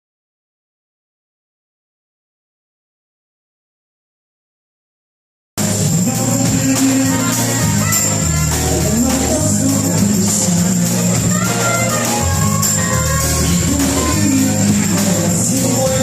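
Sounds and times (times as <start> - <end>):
bass line: 5.6 - 16.0
live band playing: 5.6 - 16.0
tambourine jingle: 5.6 - 16.0.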